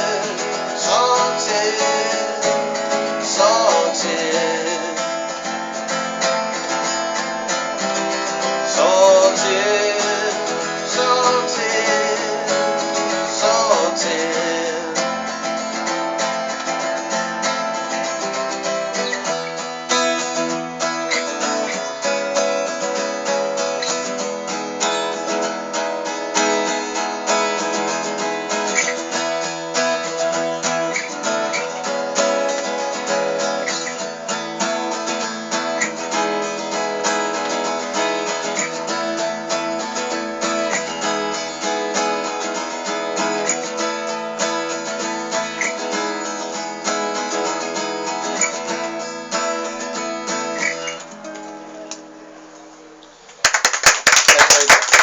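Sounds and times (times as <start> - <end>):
acoustic guitar strumming: 0.0 - 53.7.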